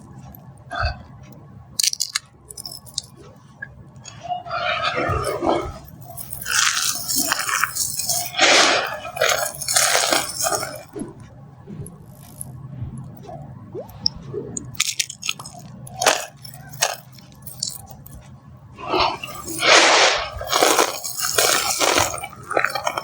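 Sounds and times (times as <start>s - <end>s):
dry soap crunching: 4.6s - 10.9s, 14.8s - 18.1s, 18.8s - 23.0s.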